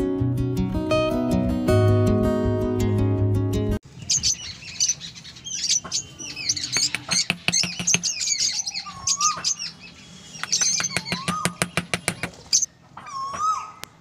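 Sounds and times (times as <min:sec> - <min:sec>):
small birds chirping: 0:03.8 - 0:14.0
wooden sticks clicking and tapping: 0:06.8 - 0:08.2, 0:10.4 - 0:12.4.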